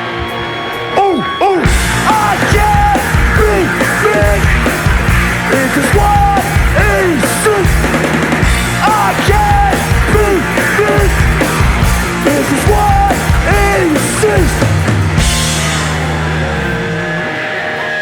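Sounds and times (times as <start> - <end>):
punk rock band playing live: 0.0 - 18.0.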